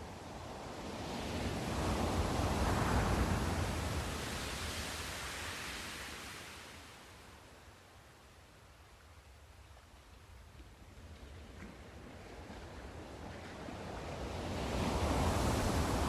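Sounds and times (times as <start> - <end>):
wave breaking and washing in: 0.3 - 7.1, 11.5 - 16.0.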